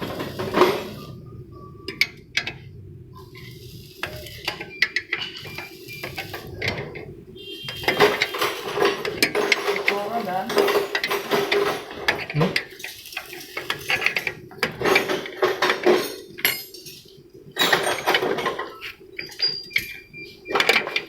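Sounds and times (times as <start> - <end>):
hand tools clinking on metal: 7.9 - 21.0.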